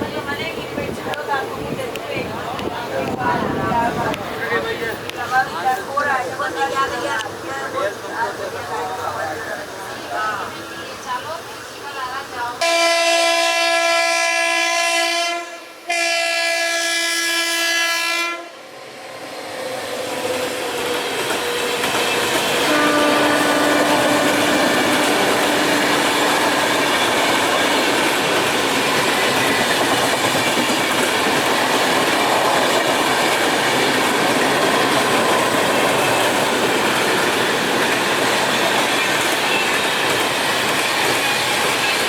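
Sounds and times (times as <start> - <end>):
held horn-like tone: 12.6 - 18.6, 22.6 - 27.8
train wheels clickety-clack: 19.7 - 42.0.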